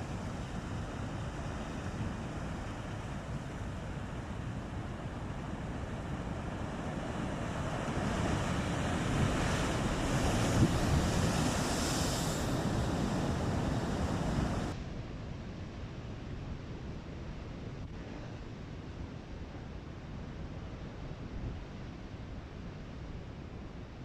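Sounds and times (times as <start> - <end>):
waves crashing: 0.0 - 14.8
wind buffeting microphone: 6.0 - 14.7.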